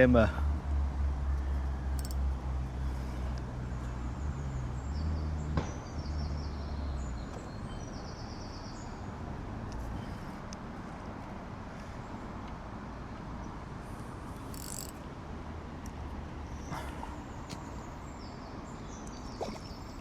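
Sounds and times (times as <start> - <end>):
low engine drone: 0.2 - 5.4.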